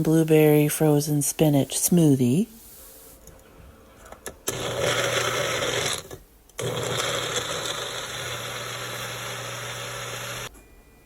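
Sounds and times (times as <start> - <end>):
blender running: 4.5 - 10.5.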